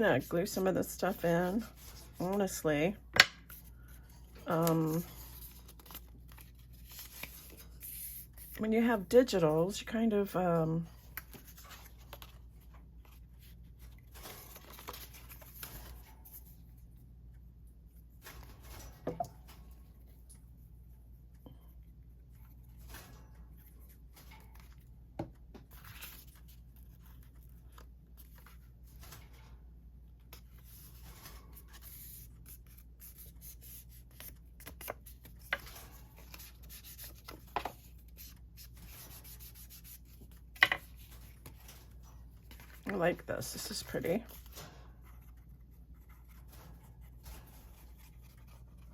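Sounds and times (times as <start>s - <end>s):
paper crackling: 3.4s - 8.6s, 11.0s - 16.4s, 30.2s - 41.8s
paper rustling: 3.4s - 8.6s, 11.0s - 16.7s, 22.4s - 29.5s, 30.2s - 48.9s.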